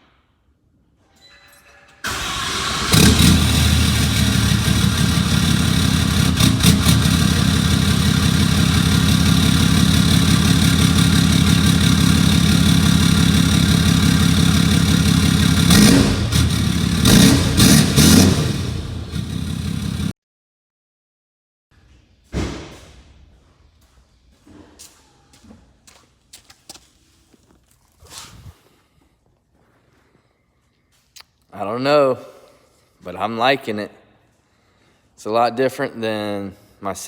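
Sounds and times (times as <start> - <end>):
diesel engine cranking: 2.0 - 20.1
diesel engine idling: 2.1 - 20.1
engine revving: 2.1 - 20.1.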